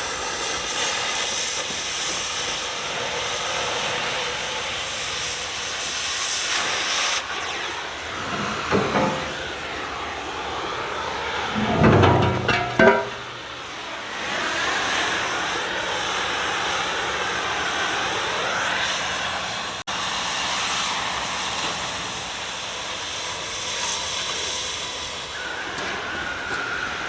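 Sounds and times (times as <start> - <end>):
metallic knocks: 8.3 - 9.5, 11.5 - 13.5.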